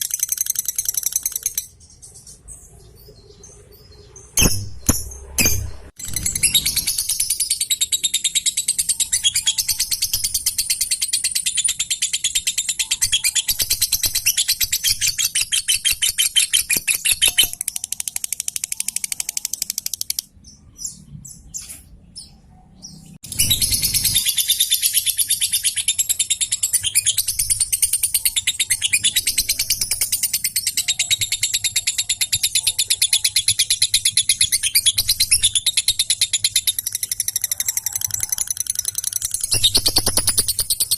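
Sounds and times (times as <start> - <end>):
lovebird chattering trill: 23.3 - 40.9.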